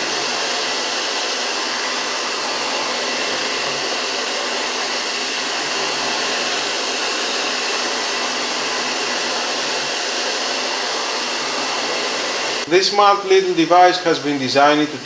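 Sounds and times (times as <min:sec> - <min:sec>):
robot vacuum cleaner humming: 0:00.0 - 0:15.0.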